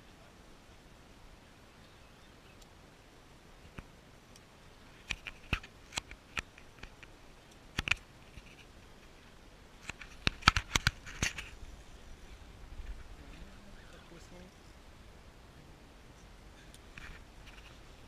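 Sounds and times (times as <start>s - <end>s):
sharp clicks and knocks: 9.8s - 11.5s.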